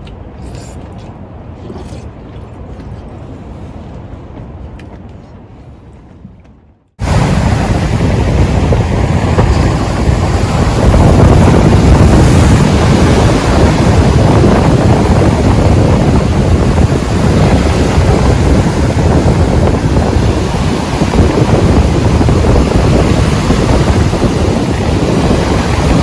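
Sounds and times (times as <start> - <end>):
sea surf rushing: 7.0 - 26.0
wind buffeting microphone: 7.0 - 26.0.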